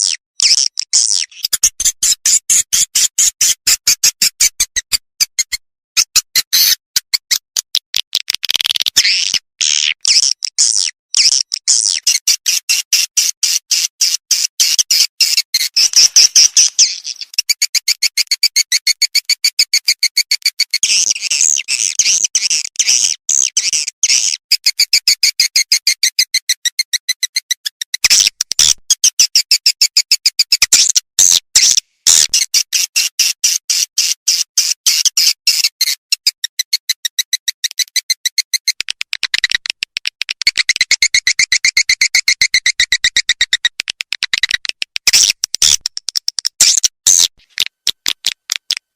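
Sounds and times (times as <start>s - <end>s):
high twittering: 14.6s - 17.3s.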